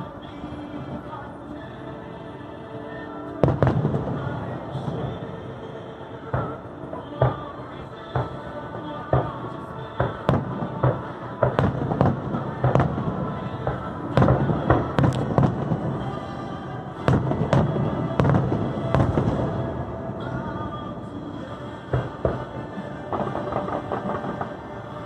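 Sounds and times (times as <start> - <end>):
music playing: 0.0 - 25.0
fireworks bangs: 3.4 - 5.3, 6.2 - 16.4, 17.0 - 25.0.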